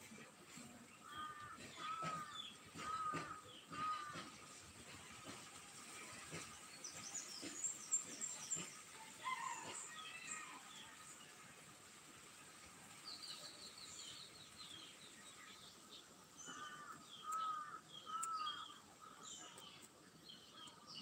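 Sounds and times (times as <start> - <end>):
bird calls: 1.0 - 4.6, 6.1 - 10.6, 13.1 - 21.0.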